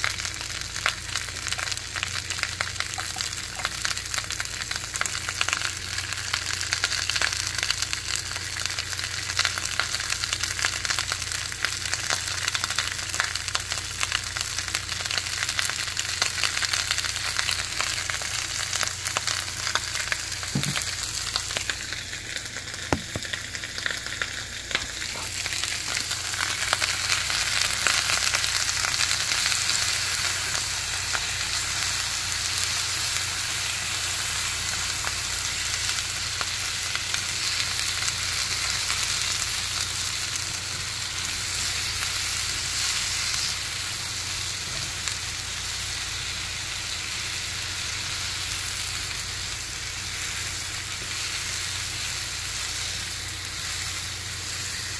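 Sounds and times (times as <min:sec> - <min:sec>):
onions sizzling in oil: 0:00.0 - 0:54.9
sharp knocks: 0:20.5 - 0:20.9, 0:22.9 - 0:23.3.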